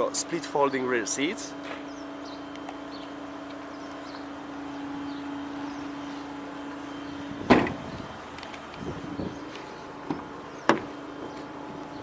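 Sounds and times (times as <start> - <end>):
electric motor humming: 0.0 - 12.0
loud thud: 7.4 - 7.8.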